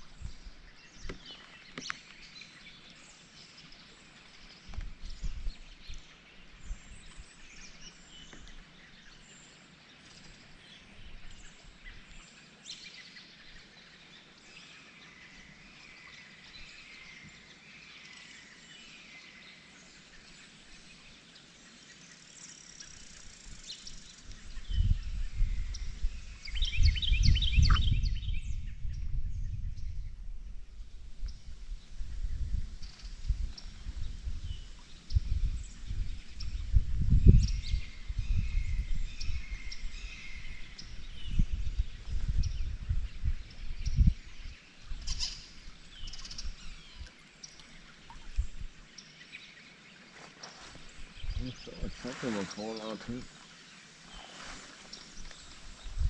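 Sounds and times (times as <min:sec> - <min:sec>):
birds chirping and whistling: 0:22.8 - 0:30.1, 0:32.3 - 0:47.1.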